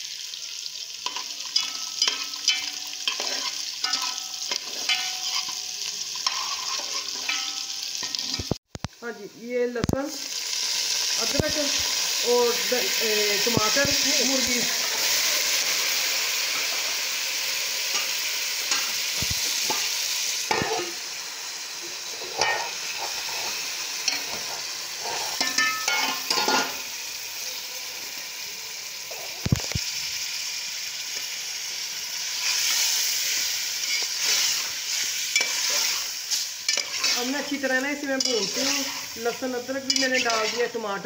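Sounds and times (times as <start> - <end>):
chicken sizzling in pan: 0.0 - 41.0
spoon scraping and knocking pan: 1.0 - 8.6, 20.5 - 21.0, 22.2 - 26.8, 33.4 - 40.8.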